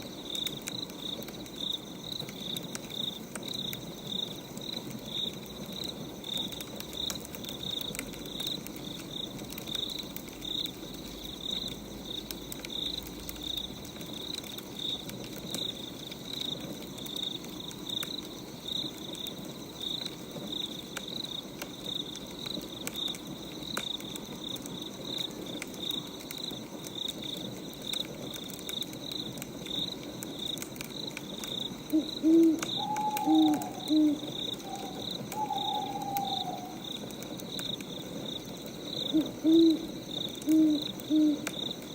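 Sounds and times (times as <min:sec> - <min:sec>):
crickets chirping: 0:00.0 - 0:41.9
wood fire crackling: 0:00.0 - 0:41.9
owl hooting: 0:31.9 - 0:36.8, 0:39.1 - 0:41.5.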